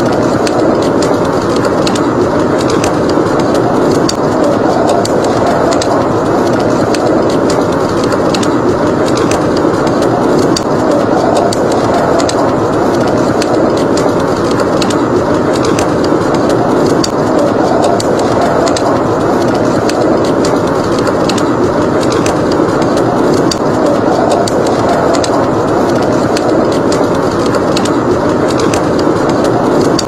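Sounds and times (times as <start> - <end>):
wind roaring: 0.0 - 30.0
wood fire crackling: 0.0 - 30.0.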